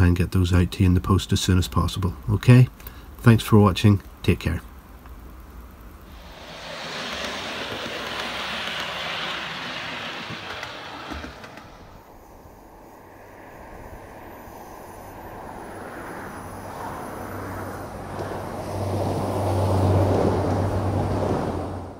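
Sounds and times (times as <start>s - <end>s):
diesel train passing: 4.8s - 21.9s.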